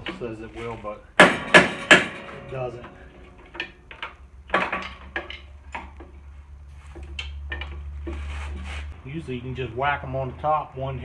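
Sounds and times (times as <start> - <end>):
steady low hum: 0.0 - 11.0
metal knocks and taps: 1.2 - 6.2.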